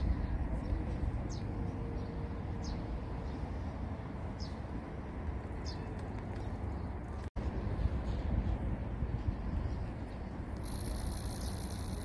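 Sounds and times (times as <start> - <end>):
bird chirping: 9.6 - 12.0.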